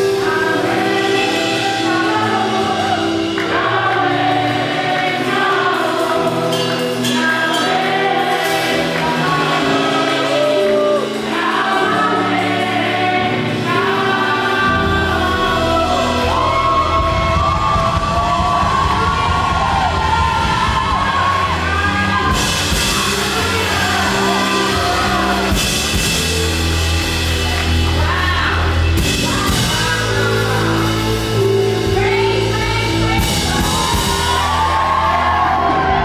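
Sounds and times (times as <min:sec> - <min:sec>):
band playing: 0:00.0 - 0:36.0
choir singing: 0:00.0 - 0:36.0
keyboard chords: 0:00.0 - 0:36.0
heavy bass: 0:08.0 - 0:36.0.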